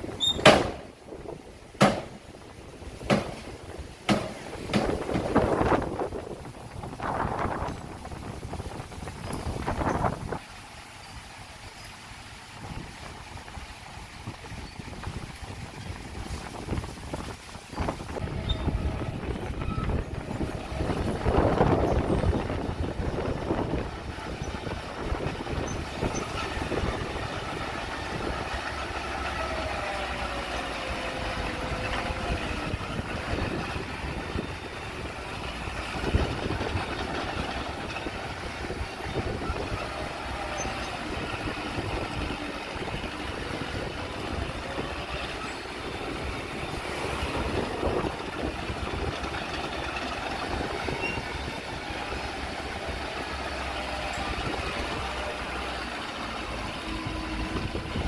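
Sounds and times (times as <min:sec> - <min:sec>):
diesel engines running: 0:00.0 - 0:58.0
sharp knock: 0:01.8 - 0:02.2.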